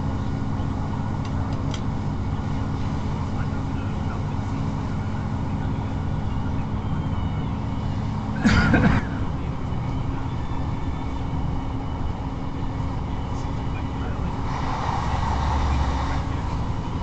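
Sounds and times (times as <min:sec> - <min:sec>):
train engine drone: 0:00.0 - 0:17.0
wheels rumbling on rails: 0:00.0 - 0:17.0.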